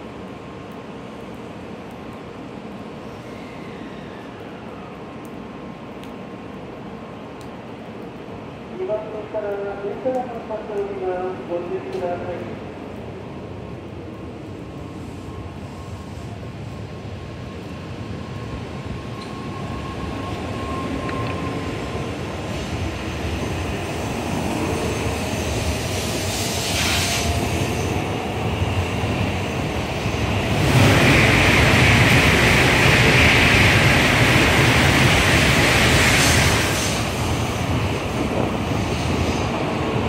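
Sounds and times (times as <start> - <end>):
train accelerating past: 2.9 - 4.9, 14.1 - 40.0.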